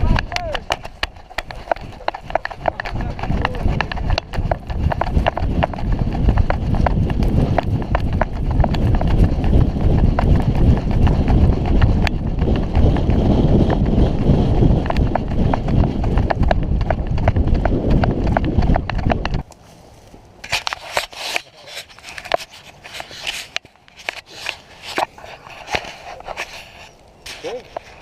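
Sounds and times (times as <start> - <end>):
heavy low rumble: 0.0 - 19.5
footsteps crunching dry leaves: 19.5 - 28.0.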